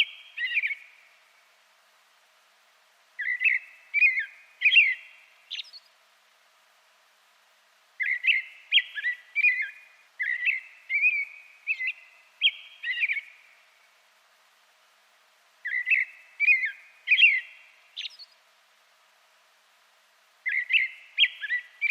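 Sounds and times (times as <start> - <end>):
songbird singing: 0.0 - 6.2, 6.8 - 14.4, 15.4 - 19.0, 19.8 - 21.9.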